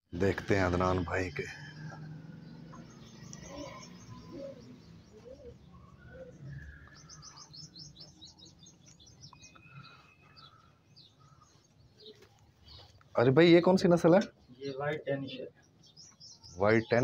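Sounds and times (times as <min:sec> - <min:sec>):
low arched bird calls: 0:00.1 - 0:17.0
high bird chirps: 0:00.4 - 0:13.1.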